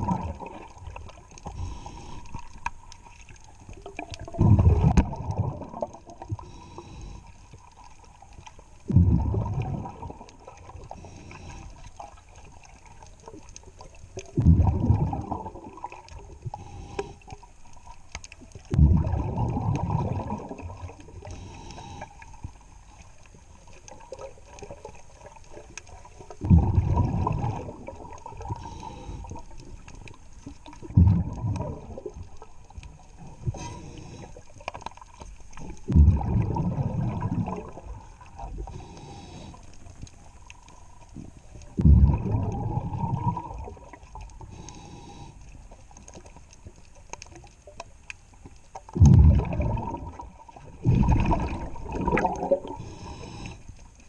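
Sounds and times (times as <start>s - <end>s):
diver's exhaled bubbles rushing: 0.0s - 1.0s, 3.9s - 6.2s, 8.9s - 10.8s, 14.3s - 16.0s, 18.7s - 21.0s, 26.4s - 28.8s, 30.8s - 32.3s, 35.8s - 38.8s, 41.8s - 44.2s, 48.9s - 53.4s
low underwater noise: 0.0s - 54.0s.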